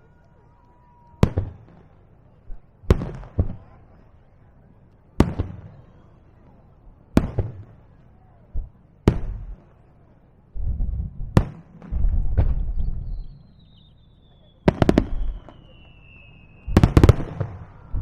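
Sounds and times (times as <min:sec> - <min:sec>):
fireworks bursting with echo: 0:00.8 - 0:03.8, 0:05.2 - 0:06.1, 0:07.1 - 0:07.9, 0:08.5 - 0:09.9, 0:10.6 - 0:18.0
rumble of smaller bursts: 0:10.5 - 0:13.5, 0:16.7 - 0:18.0.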